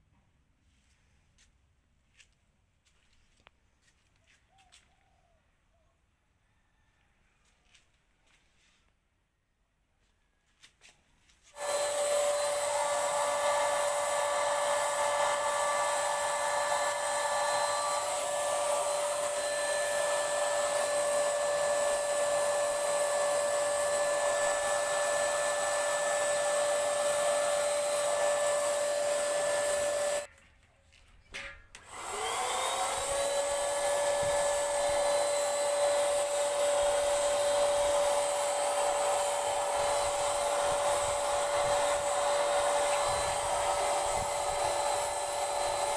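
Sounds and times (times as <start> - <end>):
spray gun motor whining: 11.5 - 30.3, 31.8 - 45.9.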